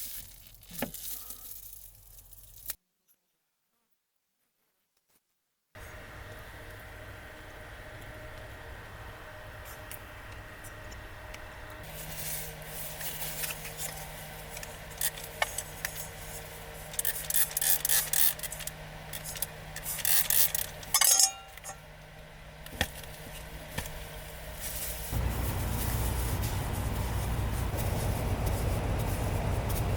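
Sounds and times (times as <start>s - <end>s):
steady low hum: 5.8s - 29.9s
dishes and utensils being handled: 20.9s - 21.8s.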